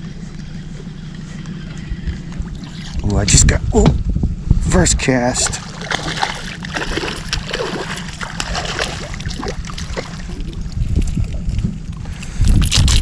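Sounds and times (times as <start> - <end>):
wind rumble on microphone: 1.4 - 13.0
water lapping against boat hull: 1.6 - 3.1, 5.3 - 12.4.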